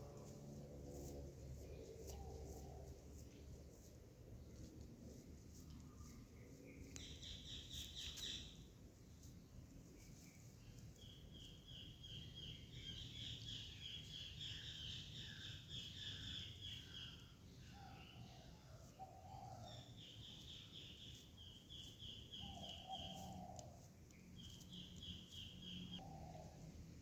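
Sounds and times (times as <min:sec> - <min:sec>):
low steady rumble: 0:00.0 - 0:11.6
small bird chirping trills: 0:00.9 - 0:26.6.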